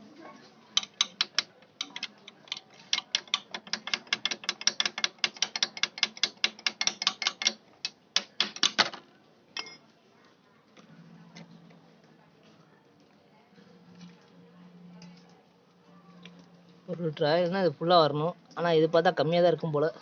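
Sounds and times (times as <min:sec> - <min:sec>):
ratchet wrench clicking: 0:00.8 - 0:08.8.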